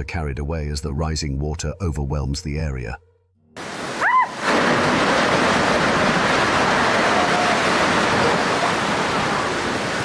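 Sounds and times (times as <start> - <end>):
floodwater rushing: 3.6 - 10.0.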